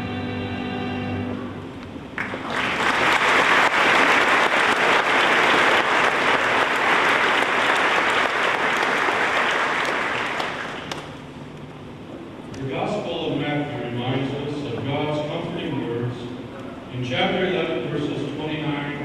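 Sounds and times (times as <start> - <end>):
audience applauding: 2.2 - 11.2.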